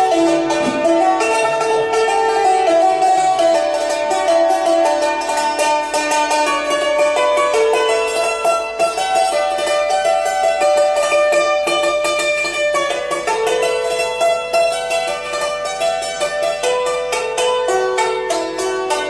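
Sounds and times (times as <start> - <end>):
fast plucked-string music: 0.0 - 19.0.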